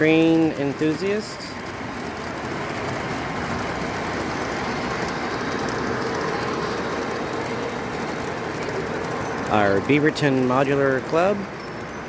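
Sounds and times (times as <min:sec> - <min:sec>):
model train rolling on track: 0:00.0 - 0:12.0.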